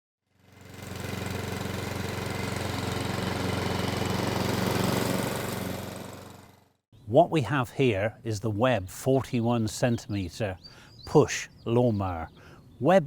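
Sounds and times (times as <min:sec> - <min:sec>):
lawnmower engine running: 0:00.3 - 0:06.8.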